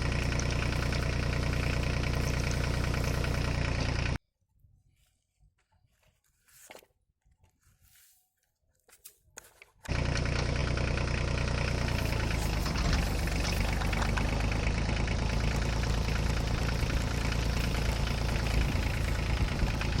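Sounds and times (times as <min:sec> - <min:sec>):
engine running steadily: 0:00.0 - 0:04.2, 0:09.9 - 0:20.0.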